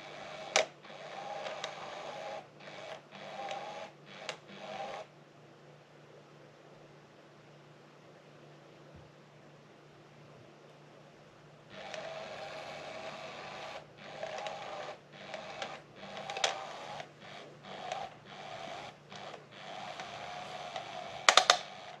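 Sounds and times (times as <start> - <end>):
small electric motor whirring: 0.0 - 5.1, 11.7 - 22.0
sharp clicks: 14.2 - 22.0.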